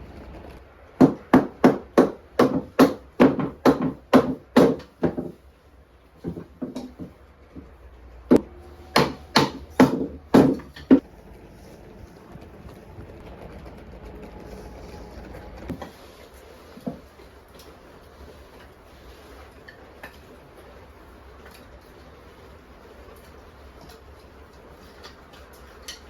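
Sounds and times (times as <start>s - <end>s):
hammer striking wood: 1.0s - 5.4s, 8.3s - 11.0s.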